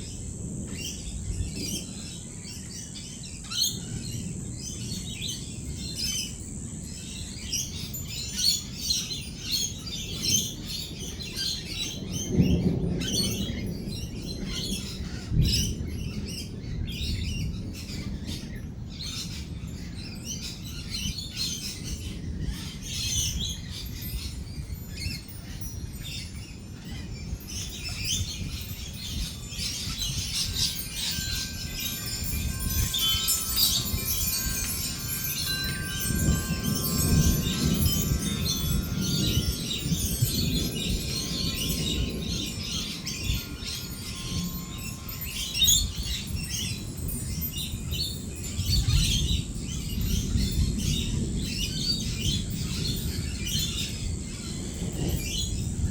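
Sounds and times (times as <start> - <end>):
thunder rolling: 27.8 - 46.2
parrots chattering and screeching: 29.6 - 40.4.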